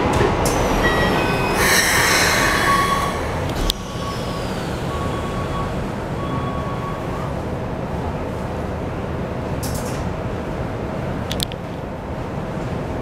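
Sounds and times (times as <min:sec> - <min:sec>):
train doors closing clunk: 0:00.0 - 0:07.4
train rumbling: 0:00.0 - 0:13.0.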